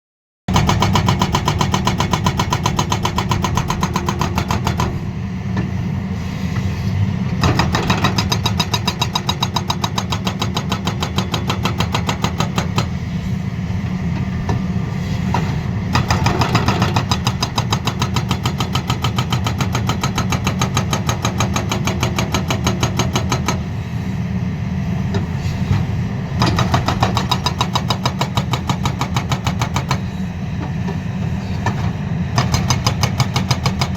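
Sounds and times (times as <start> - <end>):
hydraulic breaker hammering rock: 0.5 - 5.0, 7.4 - 13.0, 15.9 - 23.7, 26.4 - 30.8, 31.6 - 33.9
diesel engine running: 0.5 - 33.9.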